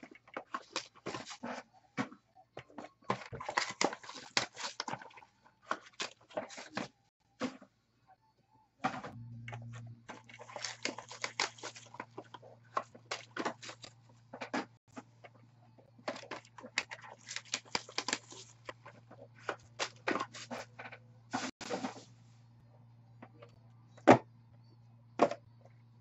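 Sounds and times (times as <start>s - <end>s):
steady low hum: 8.6s - 17.5s.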